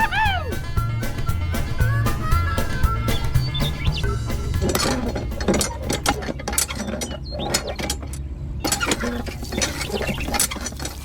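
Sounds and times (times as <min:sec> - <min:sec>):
mechanical clicking and clanking: 0:04.4 - 0:11.0.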